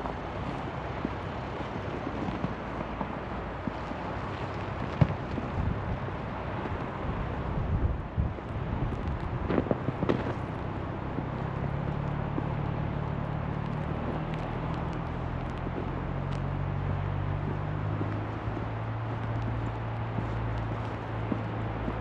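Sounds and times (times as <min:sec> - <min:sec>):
vehicle engine hum: 0:00.0 - 0:22.0
wind and snow noise: 0:00.0 - 0:22.0
footsteps crunching in snow: 0:09.0 - 0:22.0.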